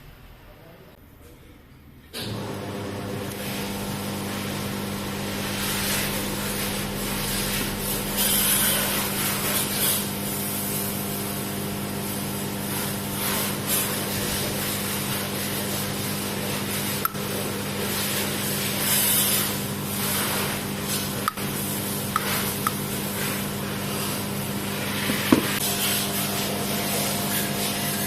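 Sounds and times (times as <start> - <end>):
power tool motor humming: 4.9 - 10.4, 16.0 - 28.0
rough scraping and rubbing: 5.5 - 10.2, 17.8 - 28.0.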